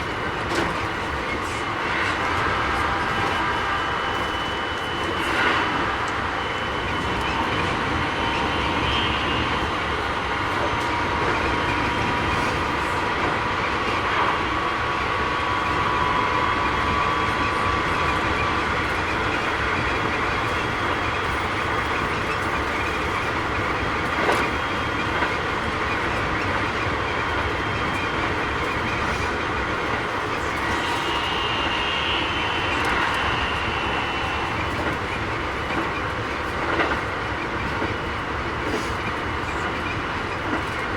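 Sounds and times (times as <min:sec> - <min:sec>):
electric train motor whine: 0:00.0 - 0:12.4, 0:14.6 - 0:38.4
train wheels rumbling on rails: 0:00.0 - 0:40.9
track clack: 0:17.2 - 0:40.9.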